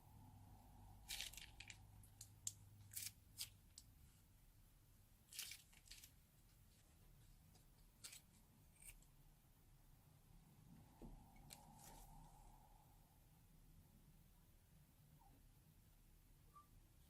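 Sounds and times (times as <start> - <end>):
plastic bags crackling: 1.0 - 2.3.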